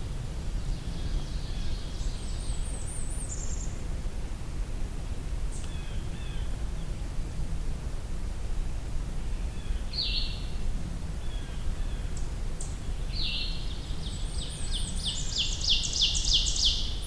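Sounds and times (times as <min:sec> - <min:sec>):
warbler singing: 0:12.7 - 0:17.0.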